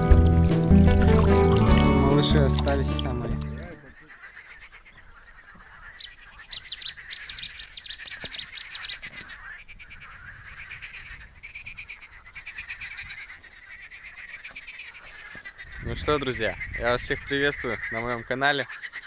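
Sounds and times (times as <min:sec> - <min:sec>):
faint bird chorus: 0:03.6 - 0:19.0.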